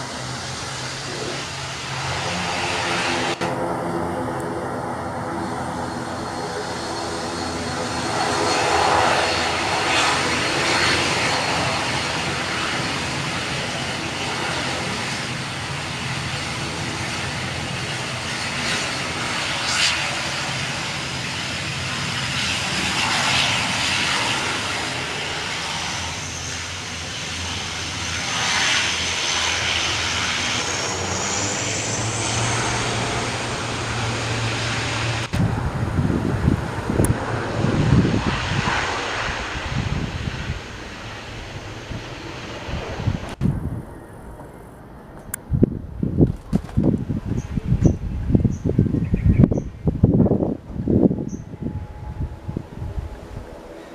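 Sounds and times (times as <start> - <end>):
airliner engines whining: 0.0 - 53.9
gusty low rumbling: 20.2 - 53.8.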